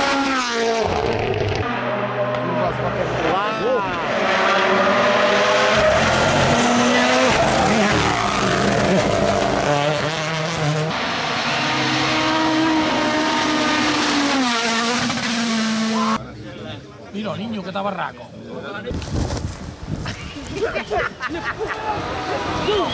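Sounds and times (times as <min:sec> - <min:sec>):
tyres skidding: 0:00.0 - 0:16.2
rally car engines at full throttle: 0:00.0 - 0:16.6, 0:21.4 - 0:22.9.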